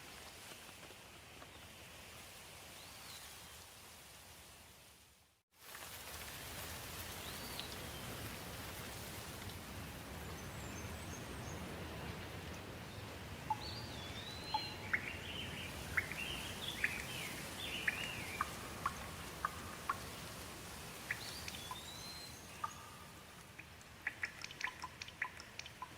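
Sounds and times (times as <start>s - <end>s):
steady rain falling: 0.0s - 25.9s
birds chirping and whistling: 13.5s - 19.7s, 21.1s - 23.1s.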